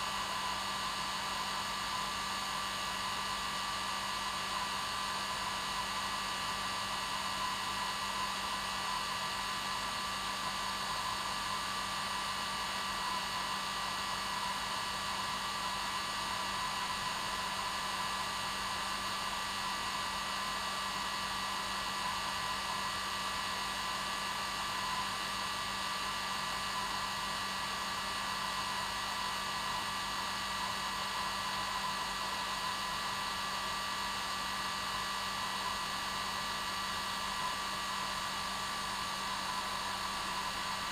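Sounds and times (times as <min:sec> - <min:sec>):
hair dryer running: 0:28.2 - 0:40.9.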